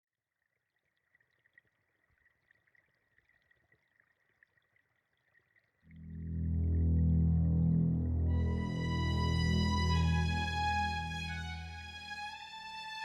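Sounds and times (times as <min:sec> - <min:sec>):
woodland stream trickling: 0:00.3 - 0:05.9
low musical drone: 0:05.9 - 0:12.5.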